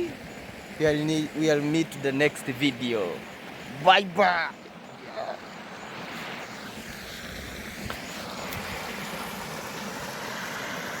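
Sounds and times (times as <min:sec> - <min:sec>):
outdoor background rush: 0:00.0 - 0:11.0.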